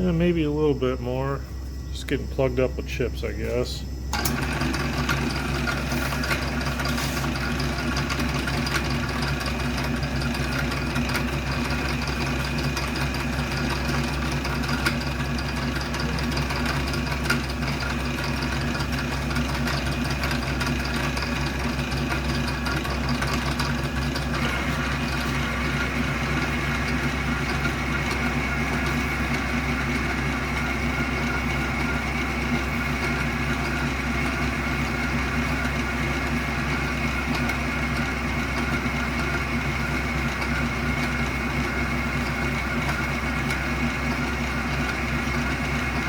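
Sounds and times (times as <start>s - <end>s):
higher whine: 0.0s - 33.0s
metal lathe running: 2.0s - 46.0s.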